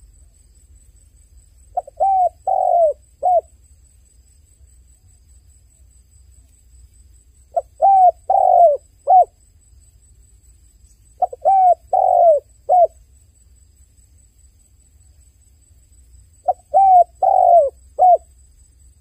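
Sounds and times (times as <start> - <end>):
dove cooing: 1.7 - 3.5, 7.5 - 9.4, 11.2 - 13.0, 16.4 - 18.3.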